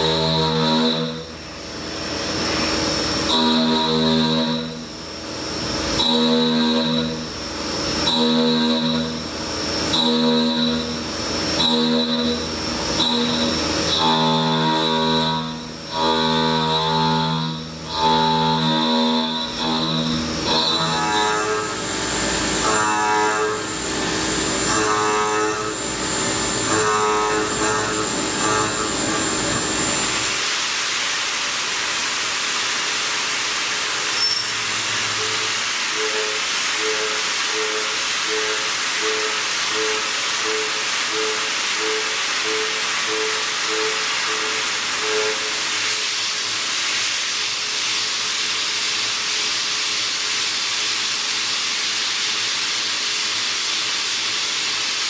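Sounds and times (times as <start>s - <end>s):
end mill milling metal: 0.0s - 30.4s.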